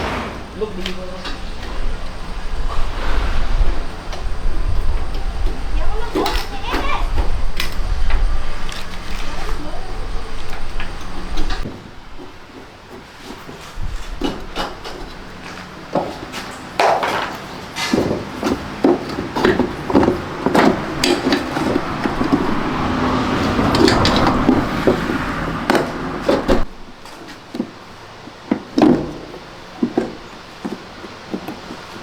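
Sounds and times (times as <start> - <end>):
steady low rumble: 0.0 - 6.1
tools and parts clattering: 12.5 - 27.8.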